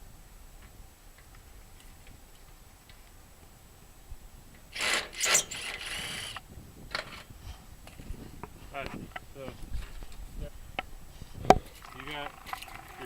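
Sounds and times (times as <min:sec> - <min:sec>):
sheet metal clanks: 0:04.8 - 0:05.9.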